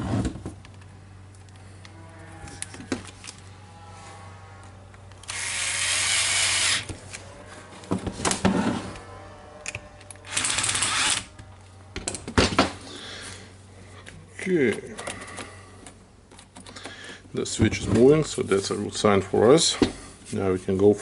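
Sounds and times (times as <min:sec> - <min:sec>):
power tool running: 0:05.2 - 0:06.9, 0:10.2 - 0:11.3.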